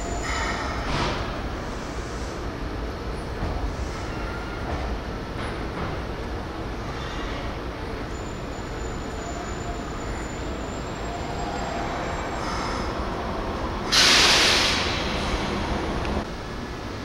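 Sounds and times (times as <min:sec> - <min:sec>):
air hiss from train brakes: 0:00.0 - 0:02.5, 0:13.8 - 0:15.4
electric train rumbling: 0:00.0 - 0:17.0.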